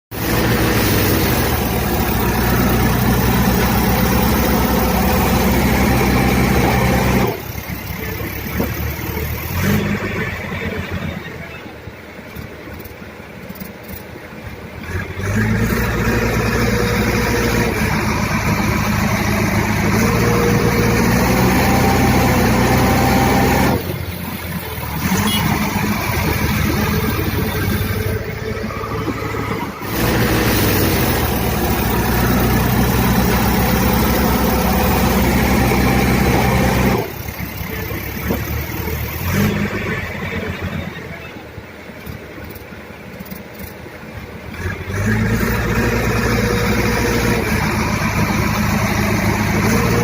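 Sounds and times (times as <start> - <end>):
backhoe diesel engine running: 0.0 - 50.0.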